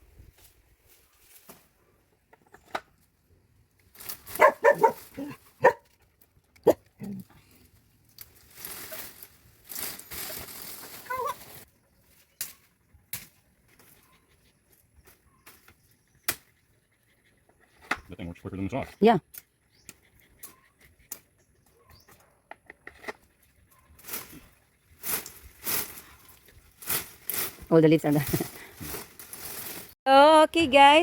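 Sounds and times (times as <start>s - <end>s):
rustling branches and leaves: 0.0s - 16.5s, 23.6s - 30.0s
dog barking: 4.4s - 5.9s
machete chopping branches: 12.3s - 13.4s.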